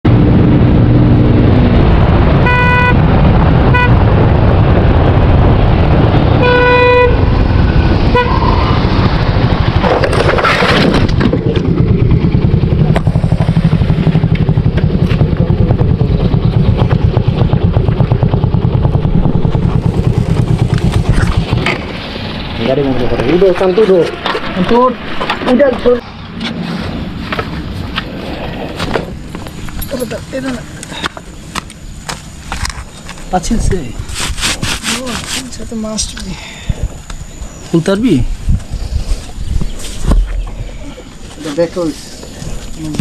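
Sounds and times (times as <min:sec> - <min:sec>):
wind: 0:00.0 - 0:43.0
motorcycle engine rumble: 0:00.1 - 0:43.0
vehicle horn honking: 0:02.4 - 0:03.0, 0:03.7 - 0:04.0, 0:06.4 - 0:07.3, 0:08.1 - 0:08.8.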